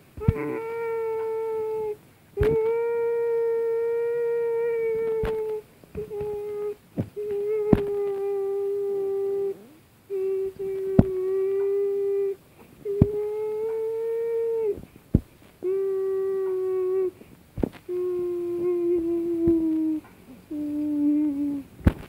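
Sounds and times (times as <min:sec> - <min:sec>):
person humming a steady note: 0:00.0 - 0:22.0.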